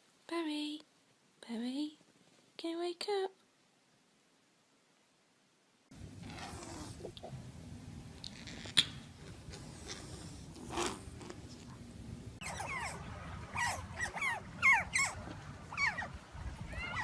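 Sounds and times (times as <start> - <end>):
puppy whining and yelping: 12.4 - 17.0.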